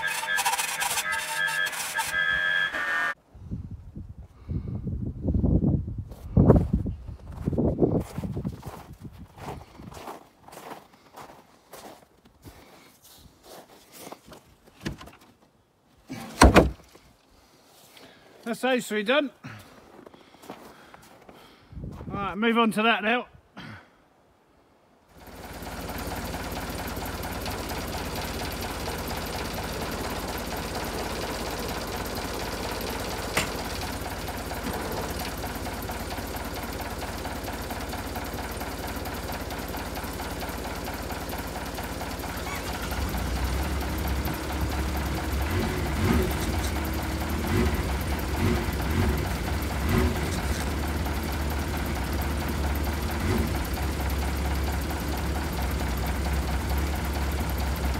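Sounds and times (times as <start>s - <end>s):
engine running: 0.0s - 3.2s, 25.1s - 57.9s.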